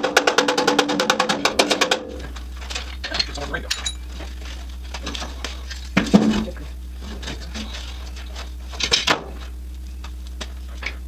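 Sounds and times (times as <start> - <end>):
low hum: 0.0 - 11.0
metal clinking and knocking: 0.2 - 5.4.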